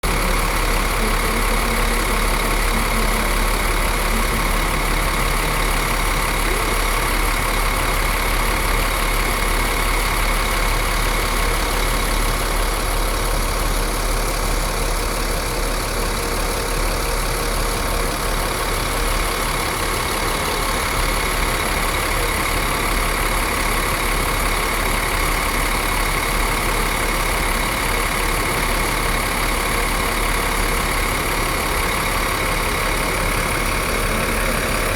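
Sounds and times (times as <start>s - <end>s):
bus diesel engine idling: 0.0s - 34.9s.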